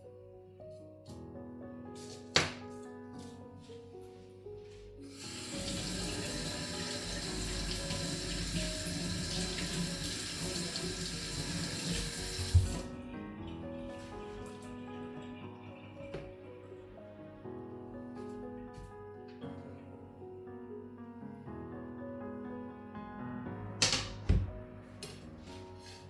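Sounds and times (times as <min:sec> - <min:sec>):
tap running into sink: 0:05.4 - 0:12.9.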